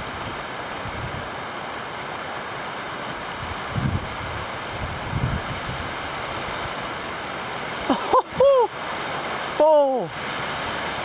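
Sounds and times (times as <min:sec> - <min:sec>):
wind buffeting microphone: 0:00.0 - 0:01.4, 0:03.3 - 0:06.8
heavy rain pouring: 0:00.0 - 0:11.0.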